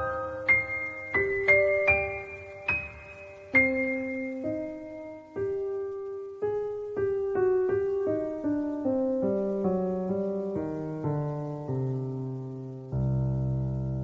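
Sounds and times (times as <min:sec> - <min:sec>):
slow piano melody: 0:00.0 - 0:14.0.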